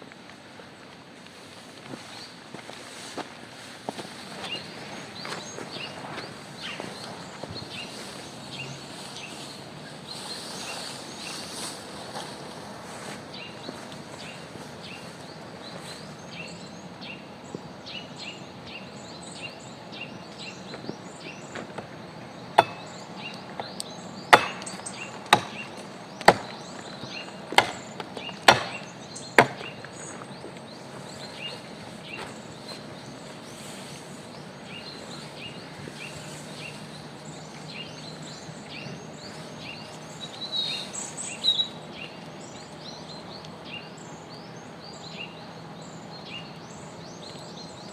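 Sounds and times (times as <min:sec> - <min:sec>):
outdoor background noise: 0:00.0 - 0:47.9
wood being chopped: 0:22.6 - 0:30.0.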